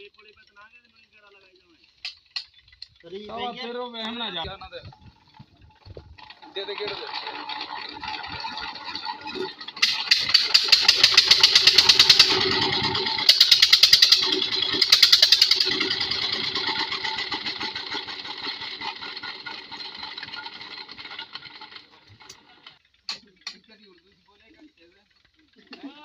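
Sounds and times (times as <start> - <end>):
pump engine knocking: 4.4 - 22.7.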